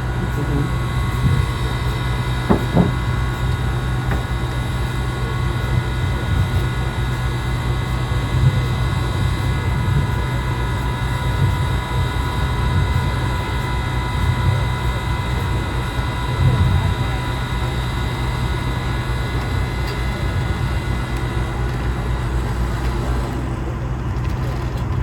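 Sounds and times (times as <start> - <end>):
engine rumble with high whine: 0.0 - 25.0
brief knock: 2.5 - 3.0.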